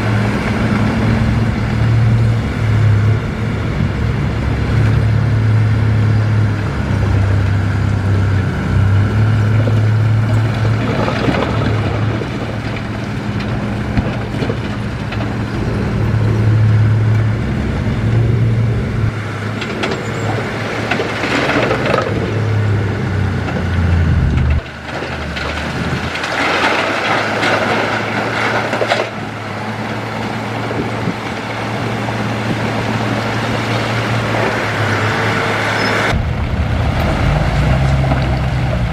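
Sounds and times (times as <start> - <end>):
diesel machinery engine hum: 0.0 - 38.9
rushing grinding noise: 0.0 - 38.9.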